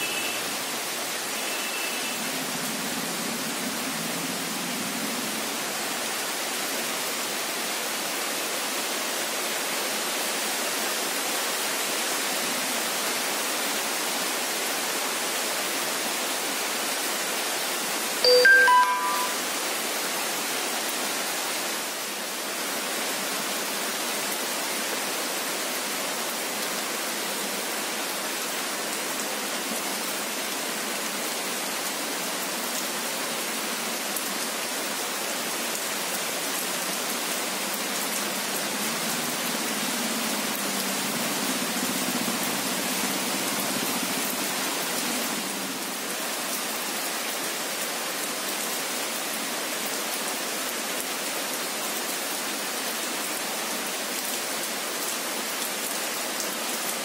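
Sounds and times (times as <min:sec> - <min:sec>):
rain falling on foliage: 0:00.0 - 0:57.0.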